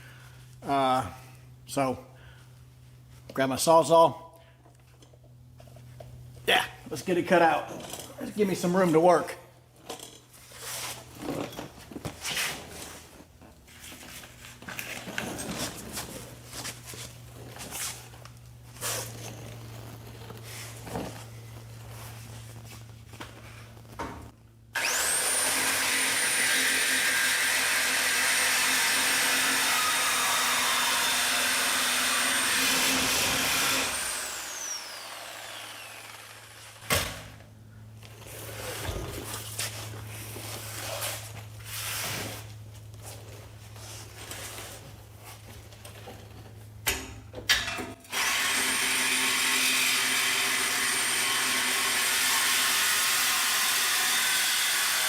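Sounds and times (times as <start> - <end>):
reciprocating saw cutting pipe: 24.8 - 36.9, 48.1 - 55.0.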